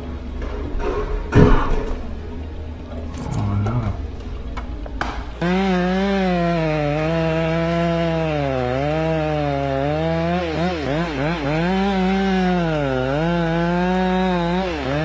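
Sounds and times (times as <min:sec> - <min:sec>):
chainsaw cutting a tree: 0:05.0 - 0:15.0.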